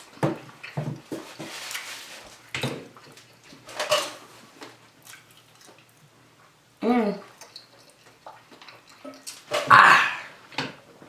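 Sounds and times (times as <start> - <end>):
person eating with crunches: 7.4 - 10.5.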